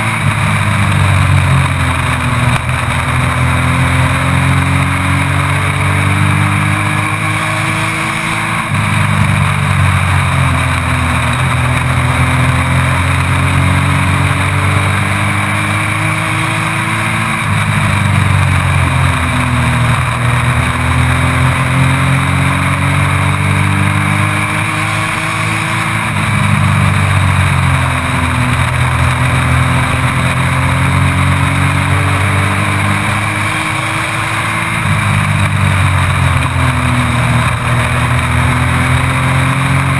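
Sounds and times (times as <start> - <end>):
truck engine accelerating: 0.0 - 39.9
wind and road rush: 0.0 - 39.9.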